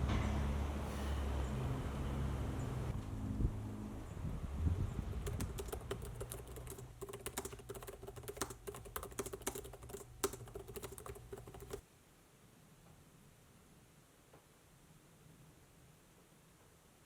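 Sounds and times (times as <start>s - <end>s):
steady low hum: 0.0s - 11.8s
rapid keyboard-like clicking: 5.0s - 11.8s.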